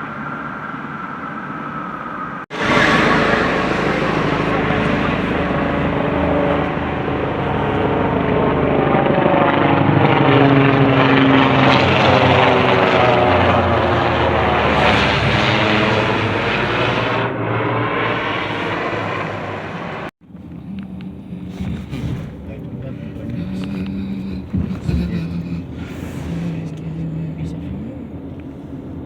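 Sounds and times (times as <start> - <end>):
low-flying aircraft passing overhead: 0.0 - 21.6.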